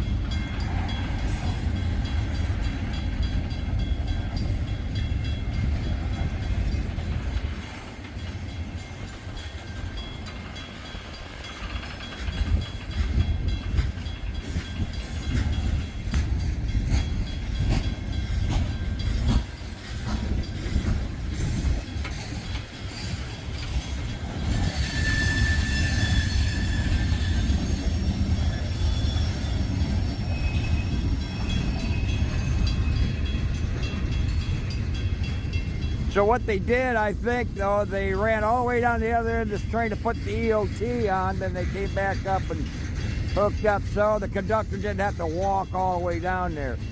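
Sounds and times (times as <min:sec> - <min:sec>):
freight train rumbling: 0:00.0 - 0:46.9
train cars clanking: 0:00.0 - 0:46.9
high wheel squeal: 0:22.9 - 0:33.8.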